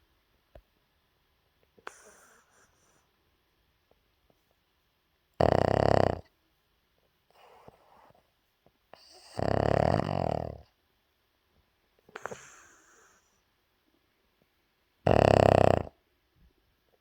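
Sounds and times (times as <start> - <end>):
soft breaths: 1.6 - 4.7, 12.0 - 14.6
puppy snoring: 1.8 - 3.0, 5.4 - 6.3, 7.3 - 8.2, 8.9 - 10.8, 12.1 - 13.4, 15.0 - 16.0.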